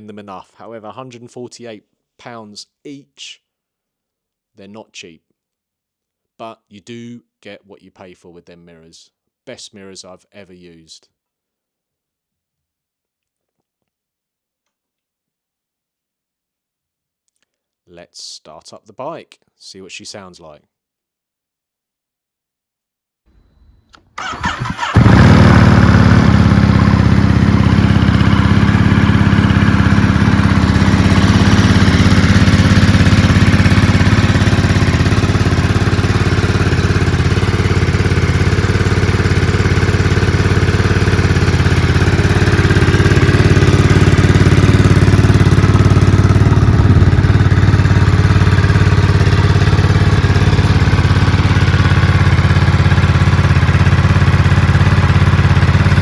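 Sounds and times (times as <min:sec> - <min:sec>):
motorcycle engine cranking: 0:24.0 - 0:52.6
motorcycle engine idling loudly: 0:24.2 - 0:56.0.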